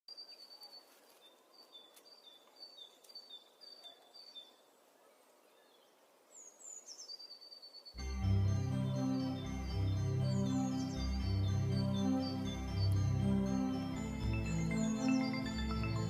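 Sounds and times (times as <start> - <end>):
faint bird chirps: 0.1 - 8.0
music with heavy bass: 8.0 - 16.0.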